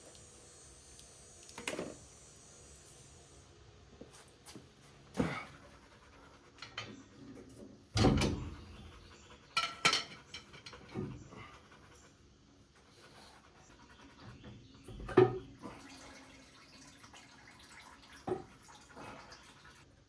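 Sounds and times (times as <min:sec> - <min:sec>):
tools knocking and clanking: 0:09.6 - 0:11.2.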